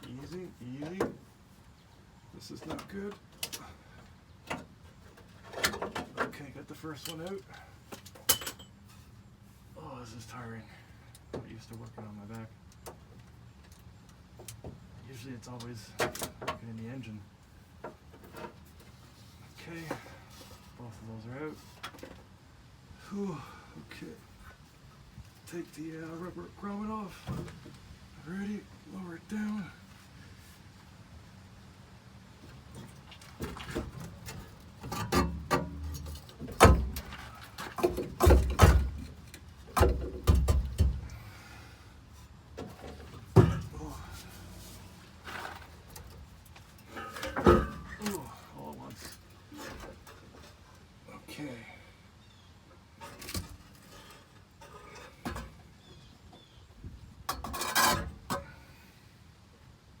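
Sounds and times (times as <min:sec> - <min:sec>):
metal clunks and scrapes: 0:04.5 - 0:09.1, 0:32.5 - 0:41.4, 0:42.2 - 0:50.8, 0:52.9 - 0:56.5, 0:57.3 - 0:58.7
heavy thuds: 0:42.7 - 0:45.1.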